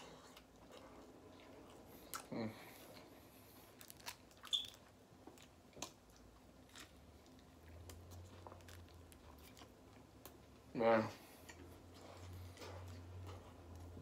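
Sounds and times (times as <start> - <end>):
person chewing: 0.0 - 10.6.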